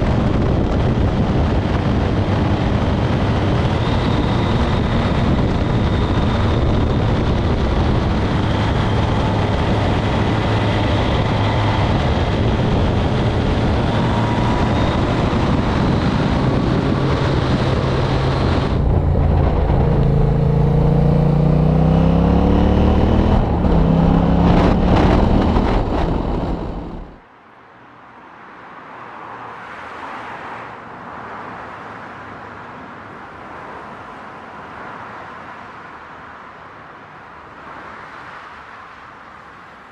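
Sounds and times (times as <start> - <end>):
motorcycle engine: 0.0 - 27.2
wind and road rush: 0.0 - 39.9.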